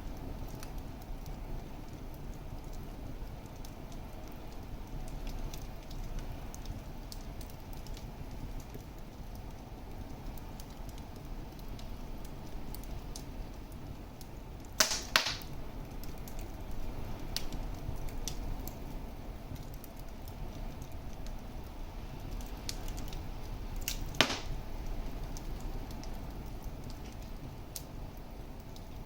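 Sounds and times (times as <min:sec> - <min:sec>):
fire crackling: 0:00.0 - 0:29.0
fire rumbling: 0:00.0 - 0:29.0
loud sharp pops: 0:14.8 - 0:15.5, 0:23.9 - 0:24.6.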